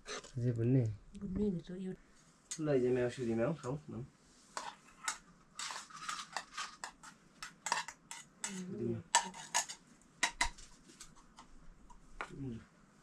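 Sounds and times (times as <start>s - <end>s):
dishes and utensils clinking: 4.6s - 10.6s.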